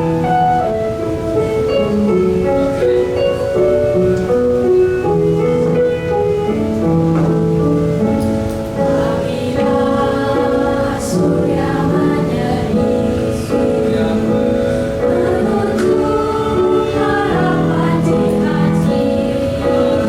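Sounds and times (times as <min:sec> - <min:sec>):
vocal ensemble singing in harmony: 0:08.0 - 0:20.0.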